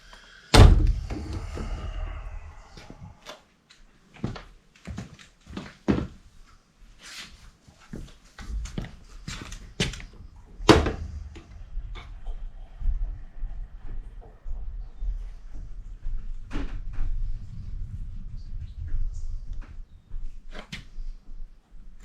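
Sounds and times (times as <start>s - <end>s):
loud knock: 0.6s - 2.3s.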